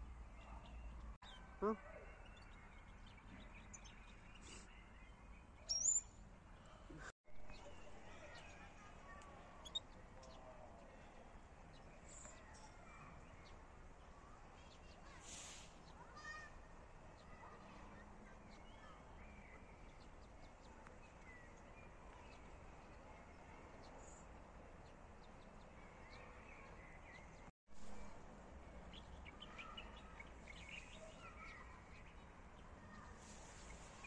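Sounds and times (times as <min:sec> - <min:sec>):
faint bird chirps: 0:00.3 - 0:13.6.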